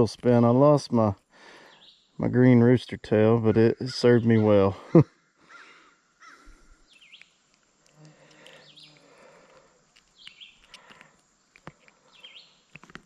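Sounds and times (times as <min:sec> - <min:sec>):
faint songbird chirping: 0:00.0 - 0:13.0
small sharp clicks: 0:07.0 - 0:13.0.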